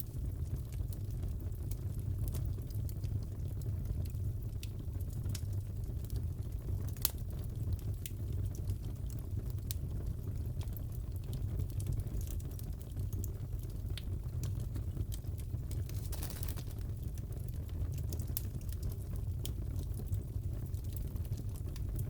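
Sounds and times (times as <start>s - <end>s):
fire rumbling: 0.0s - 22.0s
wood popping and crackling: 13.6s - 20.0s.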